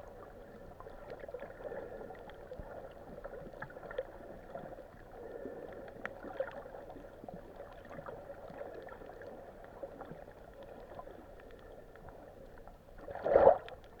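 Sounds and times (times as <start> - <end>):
muffled underwater wash: 0.0 - 14.0
faint clicks: 10.1 - 12.8, 13.6 - 14.0.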